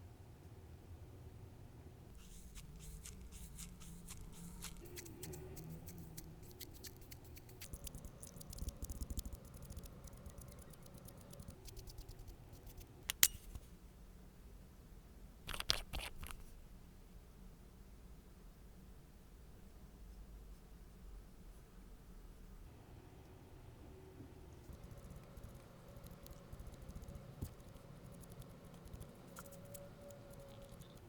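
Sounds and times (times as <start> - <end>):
nail-care tools clicking: 13.1 - 13.4.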